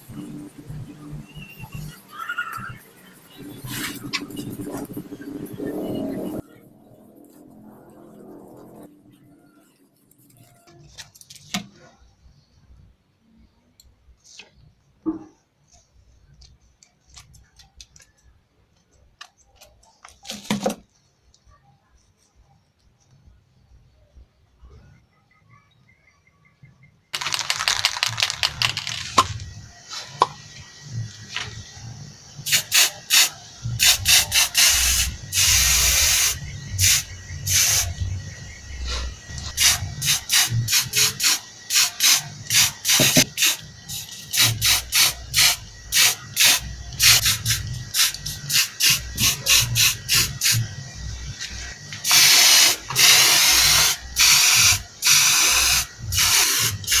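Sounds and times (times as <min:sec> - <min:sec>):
aerosol spray can spraying: 0:32.5 - 0:37.9, 0:39.6 - 0:50.6, 0:52.0 - 0:57.0.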